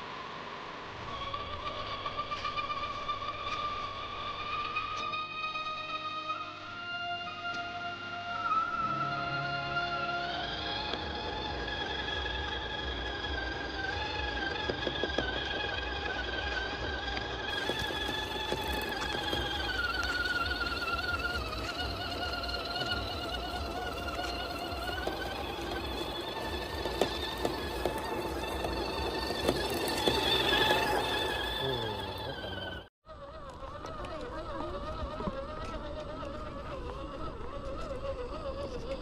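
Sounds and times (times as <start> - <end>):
toy truck electric motor whining: 1.0 - 6.4, 7.8 - 39.0
wheels clicking and knocking: 10.4 - 39.0.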